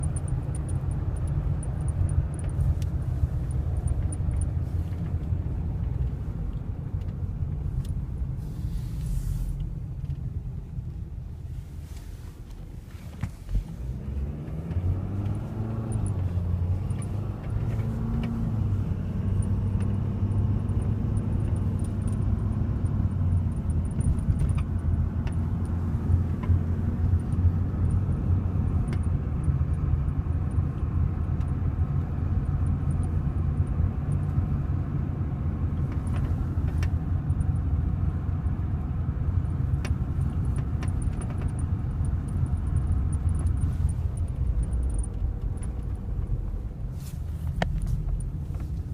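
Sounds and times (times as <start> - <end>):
diesel engine droning: 10.4 - 48.9.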